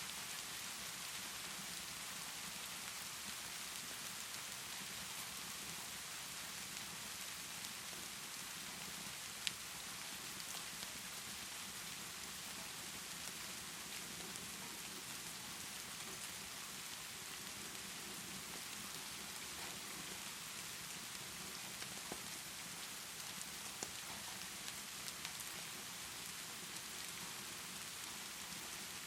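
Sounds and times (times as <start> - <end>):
steady rainfall hissing: 0.0 - 29.0
wood fire crackling: 7.6 - 29.0.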